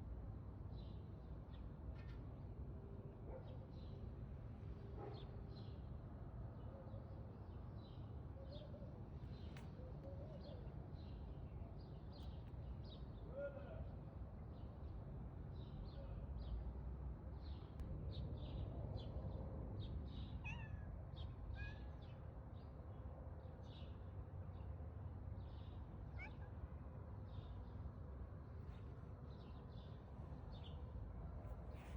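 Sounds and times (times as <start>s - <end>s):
cat meowing faintly: 26.1s - 26.6s.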